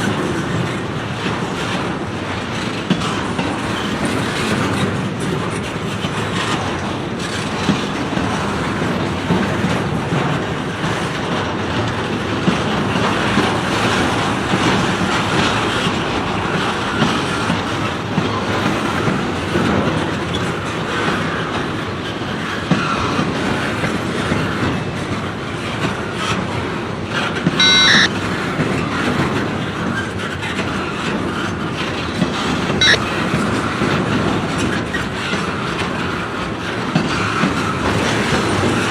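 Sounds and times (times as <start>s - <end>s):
high-pitched wheel squeals: 27.6s - 28.1s.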